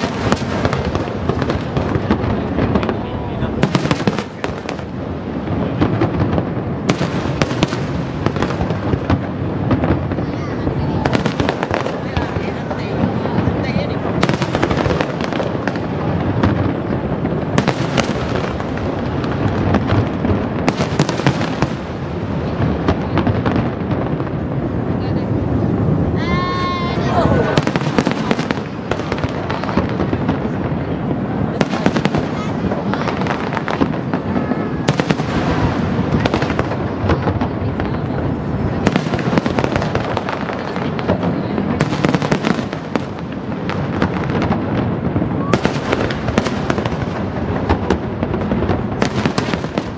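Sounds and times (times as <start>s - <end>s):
fireworks crackling and banging: 0.0s - 49.9s
firework shells bursting with cracks: 27.5s - 49.9s.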